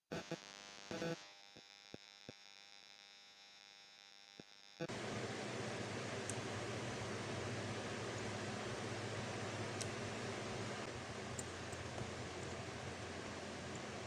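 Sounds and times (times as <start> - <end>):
faint electrical hum: 4.8 - 14.0
loud steady hiss: 4.9 - 14.0.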